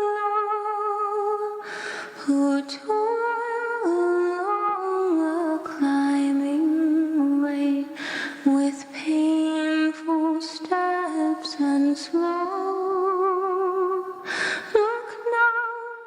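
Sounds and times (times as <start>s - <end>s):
person breathing in: 1.6s - 2.2s, 7.9s - 8.4s, 14.2s - 14.8s.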